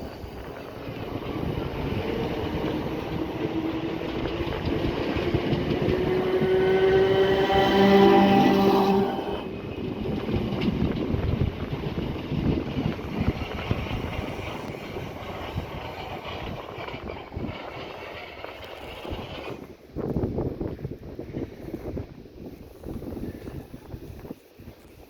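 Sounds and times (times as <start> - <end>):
train wheels clattering over rail joints: 0.0 - 22.1
steady tone: 1.3 - 9.6.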